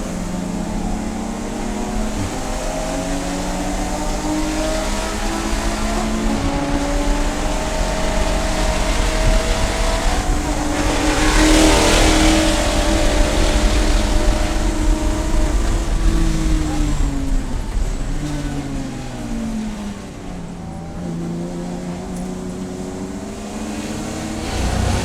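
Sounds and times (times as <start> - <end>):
race car engine accelerating: 0.0 - 25.0
rush of noise: 23.9 - 25.0.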